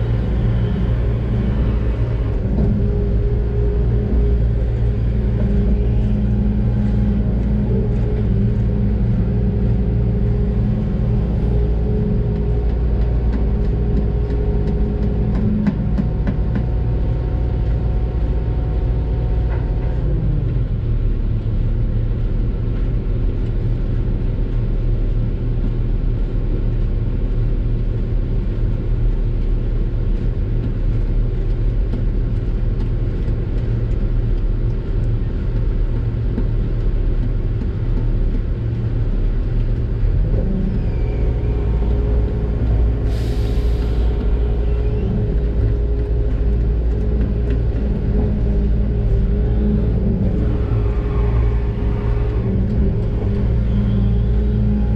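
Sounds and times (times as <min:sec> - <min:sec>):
excavator diesel engine running: 0:00.0 - 0:27.4, 0:31.2 - 0:54.9.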